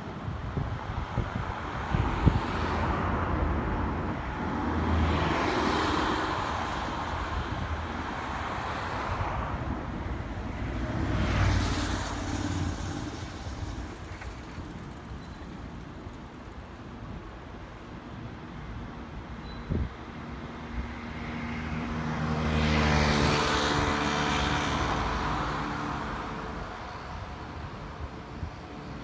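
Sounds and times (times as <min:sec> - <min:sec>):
electric train rumble: 0:10.5 - 0:17.5.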